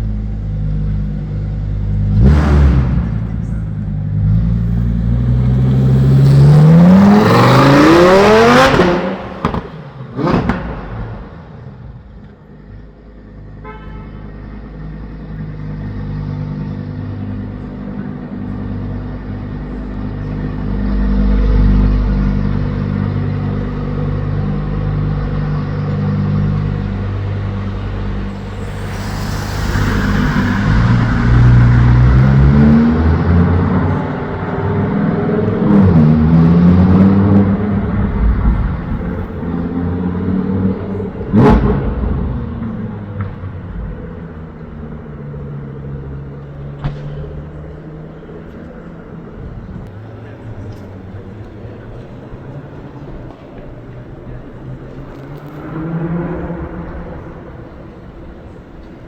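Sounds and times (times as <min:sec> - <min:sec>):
sports car engine revving: 0:00.2 - 0:12.0
car horn toot: 0:13.6 - 0:14.5.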